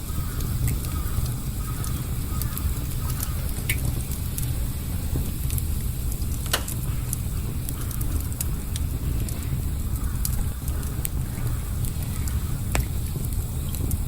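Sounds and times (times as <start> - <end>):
campfire crackling and popping: 0.0 - 14.0
low rumble: 0.0 - 14.0.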